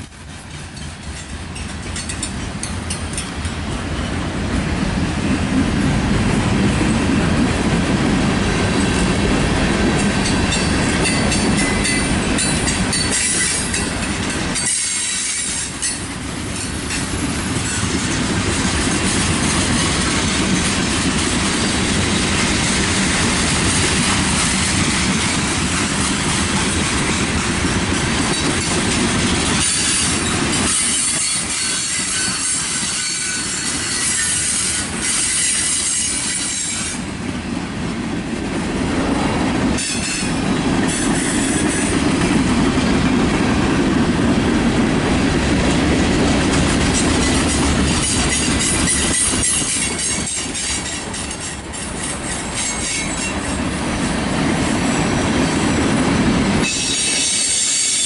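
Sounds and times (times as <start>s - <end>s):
train wheels clattering on rails: 0.0s - 58.0s
high-pitched wheel squeal: 29.6s - 37.0s, 56.6s - 58.0s.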